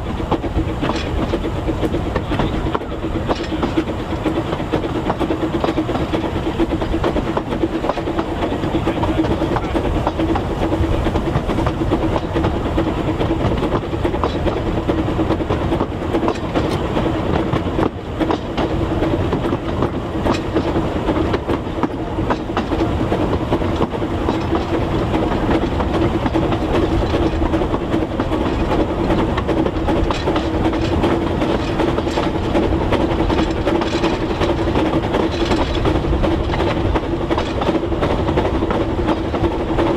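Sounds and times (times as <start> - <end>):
train running hum: 0.0 - 39.9
train wheels clicking over rail joints: 0.0 - 39.9.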